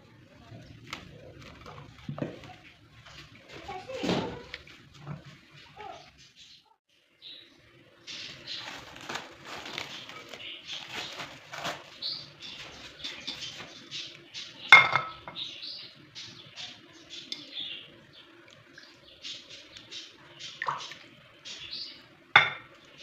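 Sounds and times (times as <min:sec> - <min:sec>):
dishes and utensils clinking: 0:14.7 - 0:15.4, 0:22.4 - 0:22.7.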